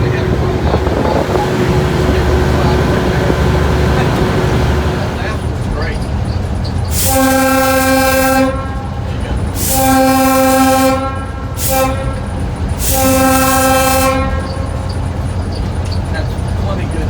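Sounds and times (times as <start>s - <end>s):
low locomotive rumble: 0.0s - 17.0s
locomotive air horn blasts: 6.9s - 15.2s.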